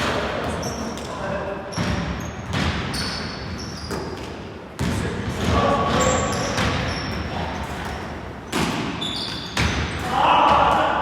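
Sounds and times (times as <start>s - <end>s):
basketball bouncing: 1.7s - 3.0s, 4.8s - 7.0s.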